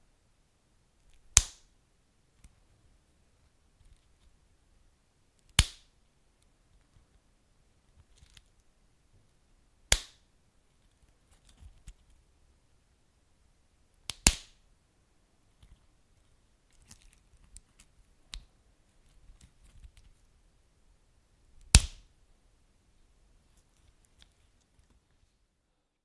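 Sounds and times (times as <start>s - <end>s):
loud pops from burning logs: 5.6s - 5.8s.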